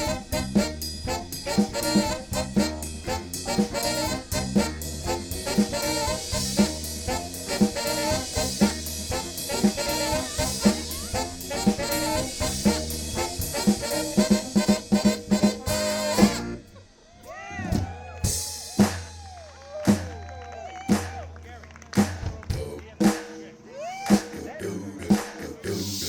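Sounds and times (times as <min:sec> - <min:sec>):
drum hits: 0:00.0 - 0:16.5
low bass: 0:00.0 - 0:16.8
live band with horns and drums: 0:00.0 - 0:26.0.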